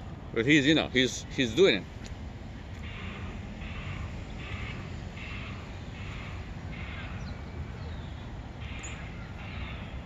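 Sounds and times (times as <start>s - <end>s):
bird cawing: 2.8s - 7.4s, 8.6s - 10.0s.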